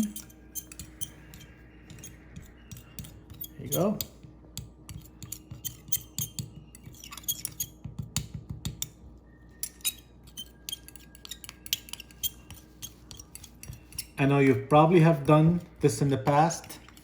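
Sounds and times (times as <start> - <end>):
teaspoon clinking against container: 0.0 - 4.0.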